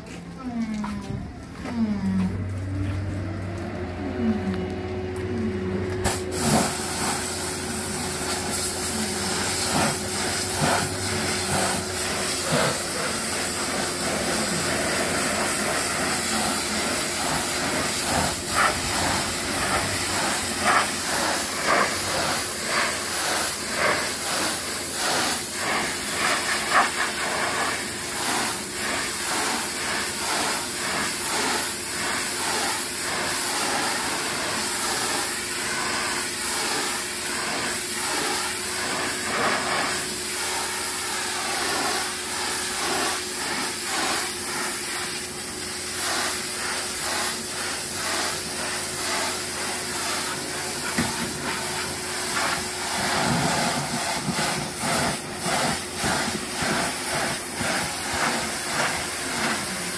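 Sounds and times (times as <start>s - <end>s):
machine hum: 0.0s - 25.6s
loud spraying hiss: 6.0s - 59.9s.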